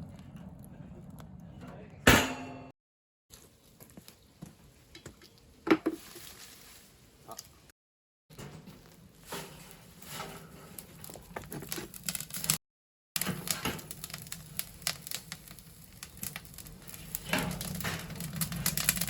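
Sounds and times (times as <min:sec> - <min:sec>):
low draught rumble: 0:00.0 - 0:02.1
burning wood crackling and popping: 0:03.3 - 0:07.7, 0:08.3 - 0:12.6, 0:13.2 - 0:19.0.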